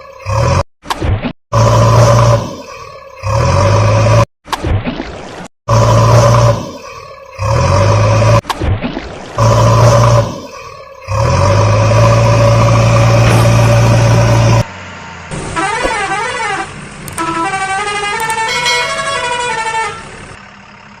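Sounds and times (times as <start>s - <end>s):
loud horn blast: 15.6s - 20.1s.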